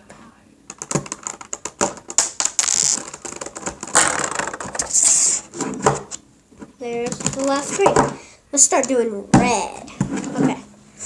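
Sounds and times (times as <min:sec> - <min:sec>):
plastic cube pieces clicking: 0:00.7 - 0:05.3
plastic pieces scraping: 0:00.7 - 0:06.2, 0:06.9 - 0:08.2.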